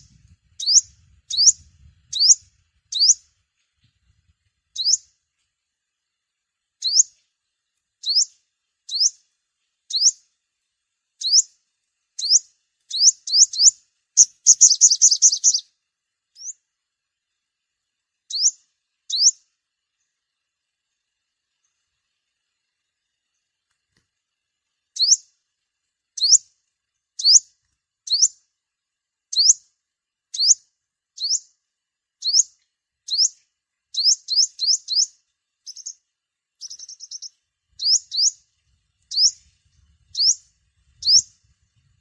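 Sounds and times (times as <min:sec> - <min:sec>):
sunbird chip calls: 0:00.0 - 0:04.0, 0:04.7 - 0:05.2, 0:06.8 - 0:07.3, 0:08.0 - 0:09.3, 0:09.9 - 0:10.3, 0:11.2 - 0:11.6, 0:12.2 - 0:16.7, 0:18.2 - 0:20.2, 0:24.9 - 0:25.4, 0:26.1 - 0:28.5, 0:29.3 - 0:31.6, 0:32.2 - 0:42.0.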